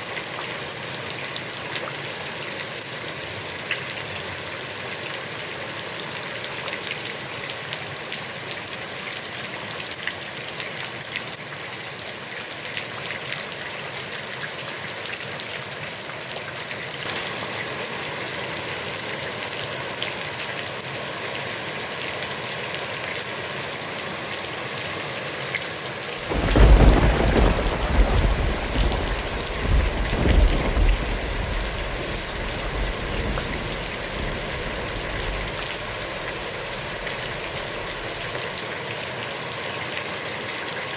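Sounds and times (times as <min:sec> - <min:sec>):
heavy rain on a pond: 0:00.0 - 0:40.9
deep rumble of thunder: 0:26.2 - 0:38.4.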